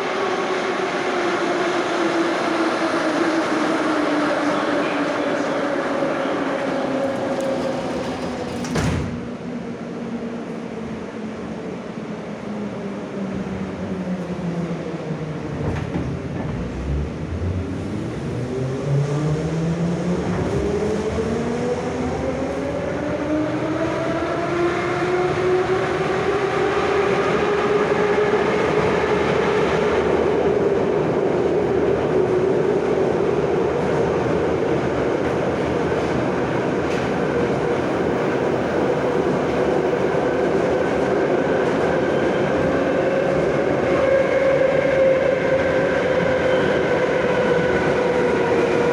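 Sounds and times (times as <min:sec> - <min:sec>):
wheels rumbling on rails: 0:06.8 - 0:09.7.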